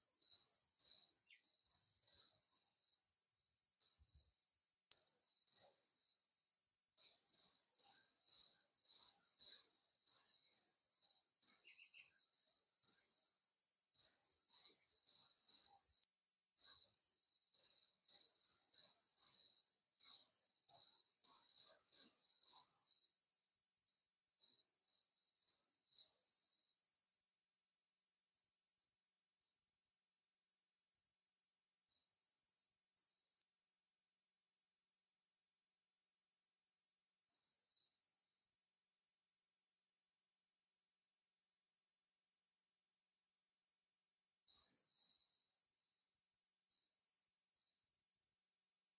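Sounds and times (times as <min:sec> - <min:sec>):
crickets chirping: 0:00.0 - 0:16.0, 0:16.6 - 0:27.1, 0:31.9 - 0:33.4, 0:37.3 - 0:38.4, 0:44.5 - 0:47.8.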